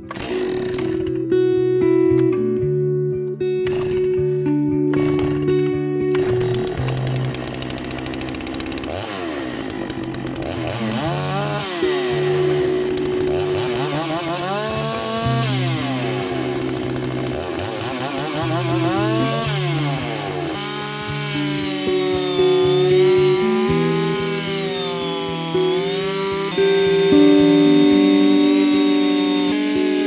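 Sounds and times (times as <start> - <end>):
chainsaw engine revving: 0.0 - 1.2, 3.6 - 4.1, 4.9 - 5.5, 6.1 - 30.0
background music: 10.4 - 30.0.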